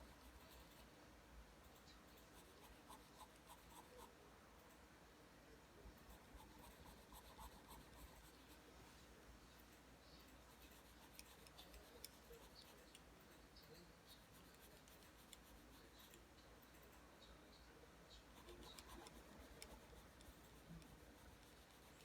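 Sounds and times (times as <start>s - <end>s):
pencil scratching on paper: 0.0s - 0.9s, 1.7s - 4.2s, 6.1s - 8.7s, 9.7s - 17.0s, 18.2s - 22.0s.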